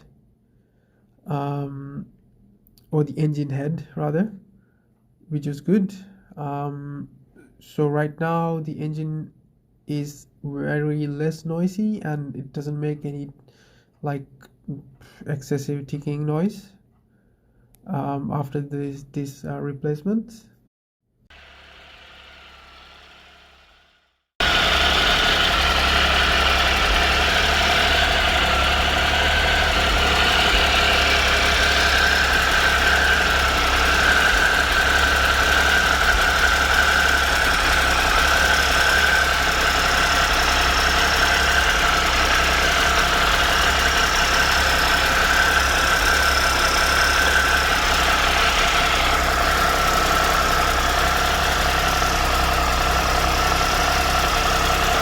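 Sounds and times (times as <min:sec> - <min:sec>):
motorcycle engine idling: 0:21.3 - 0:55.0
light engine tick: 0:24.4 - 0:55.0.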